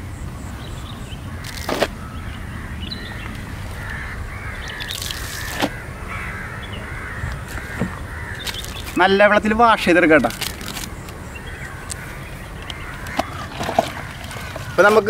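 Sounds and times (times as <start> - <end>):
birds calling: 0.0 - 15.0.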